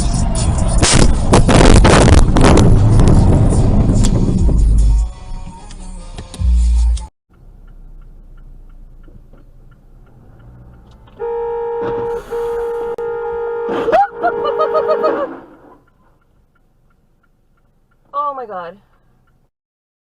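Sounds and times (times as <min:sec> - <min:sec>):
road noise: 0:00.0 - 0:19.5
car horn blaring: 0:11.1 - 0:15.7.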